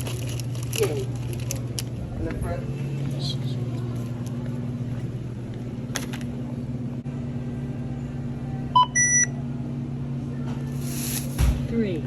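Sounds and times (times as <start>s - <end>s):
steady electrical hum: 0.0s - 12.0s
barcode scanner beeping: 8.8s - 9.3s.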